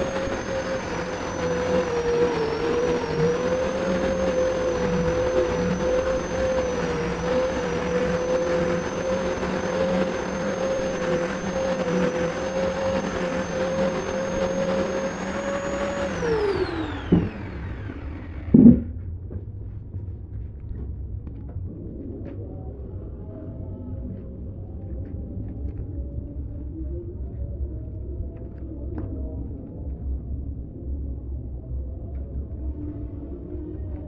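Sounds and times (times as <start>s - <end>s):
power tool running and spinning down: 0.0s - 19.2s
sharp knocks: 18.6s - 19.0s.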